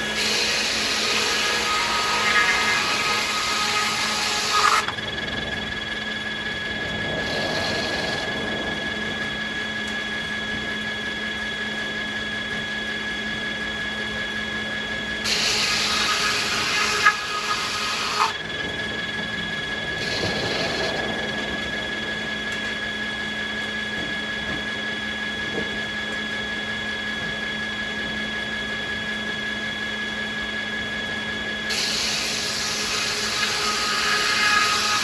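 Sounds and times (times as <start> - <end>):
saw cutting wood: 0.0 - 5.1, 15.2 - 19.0, 19.6 - 21.7, 31.7 - 35.0
sawmill machinery humming: 0.0 - 35.0.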